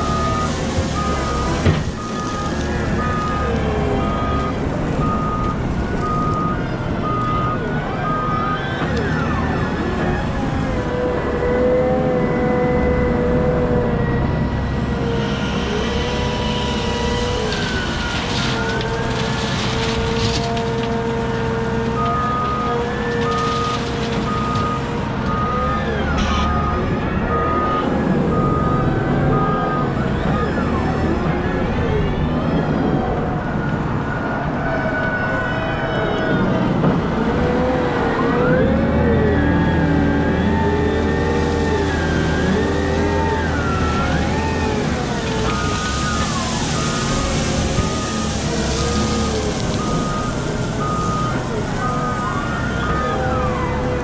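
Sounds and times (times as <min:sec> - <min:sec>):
reversing alarm beeps: 0:00.0 - 0:09.7, 0:22.0 - 0:30.9, 0:39.5 - 0:54.0
diesel engine rumble: 0:00.0 - 0:54.0.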